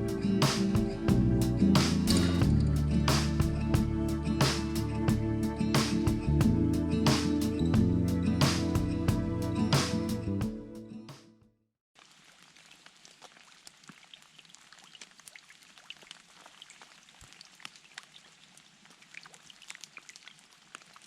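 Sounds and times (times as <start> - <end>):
snowmelt dripping from trees: 12.0 - 21.0.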